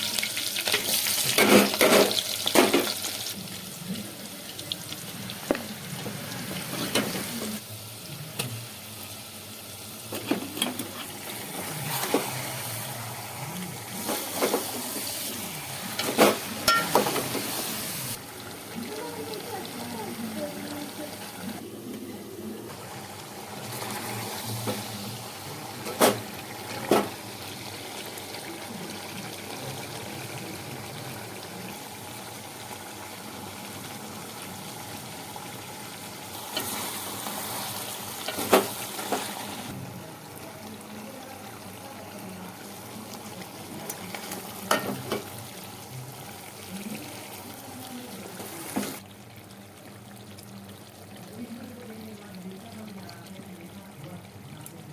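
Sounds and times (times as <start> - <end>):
food hissing in a pan: 17.2 - 18.2, 36.2 - 39.8.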